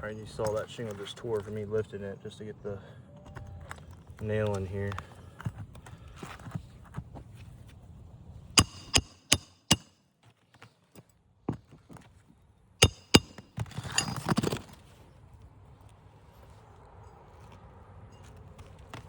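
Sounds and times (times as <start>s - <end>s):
hammer striking roofing nail: 8.6s - 9.9s, 12.8s - 14.4s.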